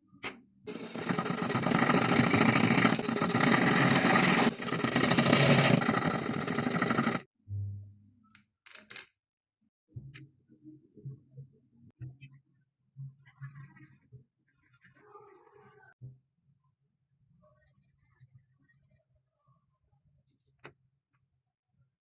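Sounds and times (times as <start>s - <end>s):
small electric motor running: 0.7s - 7.2s.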